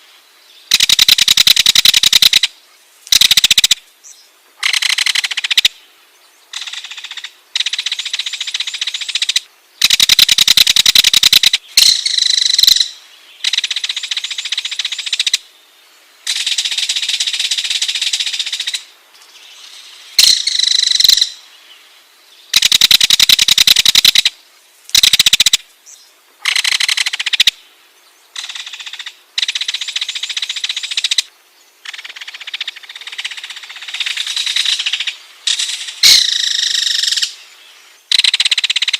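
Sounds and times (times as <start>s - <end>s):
kingfisher rattling call: 0.7s - 2.5s, 3.1s - 3.8s, 9.1s - 12.9s, 22.5s - 24.3s, 24.9s - 25.6s.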